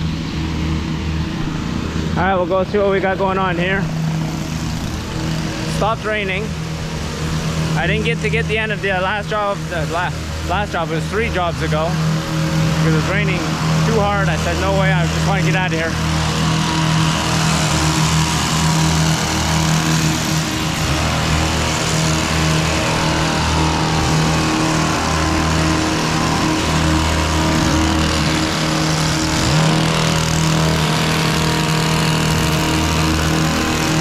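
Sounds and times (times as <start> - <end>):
engine running steadily: 0.0 - 34.0.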